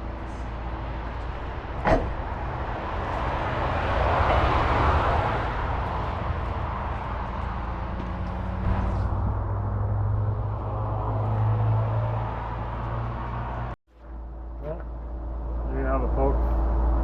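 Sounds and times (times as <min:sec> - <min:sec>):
rushing noise: 0:00.0 - 0:14.3
vehicle engine humming: 0:00.0 - 0:17.0.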